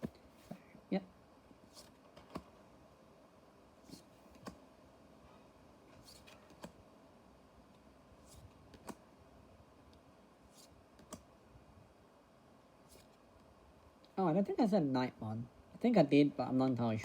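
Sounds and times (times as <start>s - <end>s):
trading cards clicking and snapping: 1.8s - 2.5s, 3.9s - 4.6s, 6.0s - 6.8s, 8.3s - 9.0s, 10.6s - 11.3s.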